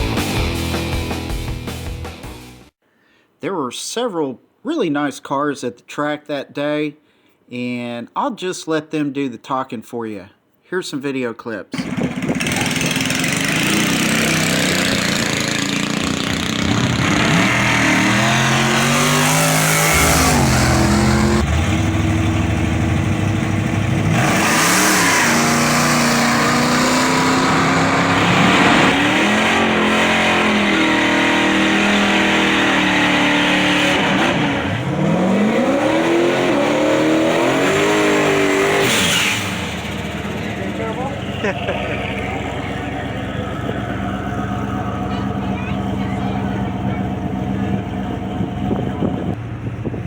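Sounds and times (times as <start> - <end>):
racing car engines revving: 11.8 - 50.0.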